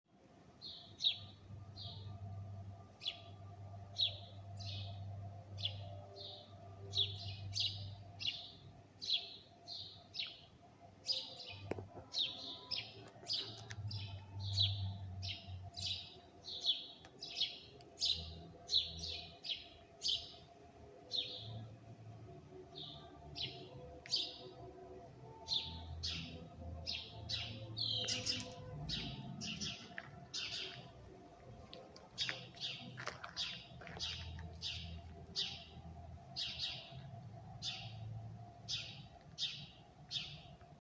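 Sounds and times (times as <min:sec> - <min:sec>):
birds chirping: 0:25.5 - 0:40.6.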